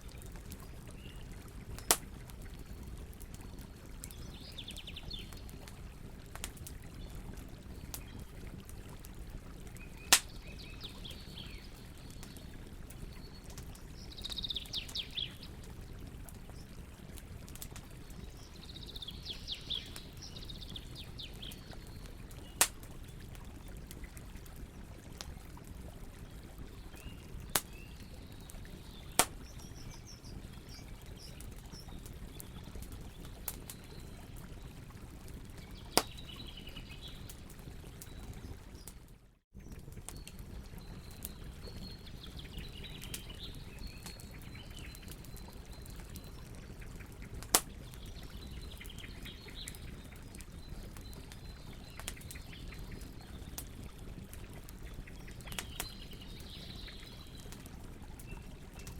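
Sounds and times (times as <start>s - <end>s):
fire crackling pops: 0.0s - 38.9s, 39.6s - 58.9s
campfire rumble: 0.0s - 58.9s.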